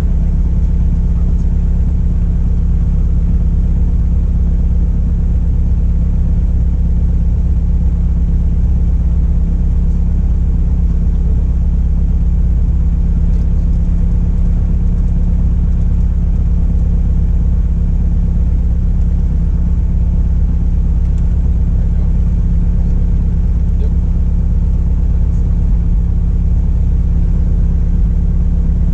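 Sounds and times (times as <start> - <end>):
aircraft engine and propeller drone: 0.0 - 28.9.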